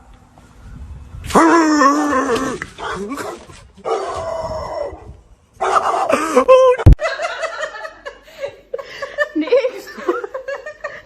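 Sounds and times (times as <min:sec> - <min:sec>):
dog howling: 0:01.4 - 0:06.1.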